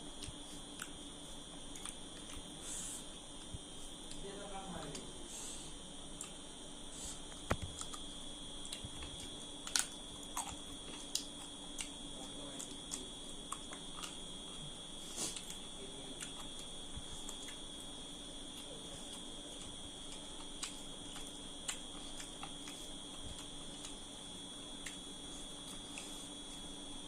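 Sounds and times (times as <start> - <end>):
chewing clicks and smacks: 0.0 - 2.5, 6.1 - 6.5, 7.3 - 14.7, 15.3 - 26.1
steady background hum: 0.0 - 27.0.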